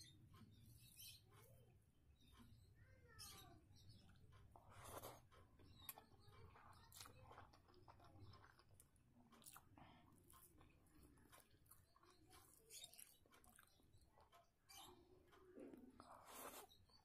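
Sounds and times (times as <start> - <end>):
person chewing food: 4.0 - 17.0.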